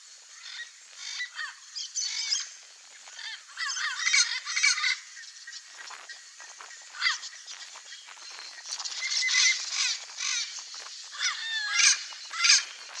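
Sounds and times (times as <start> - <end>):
parrots squawking: 11.1 - 13.0.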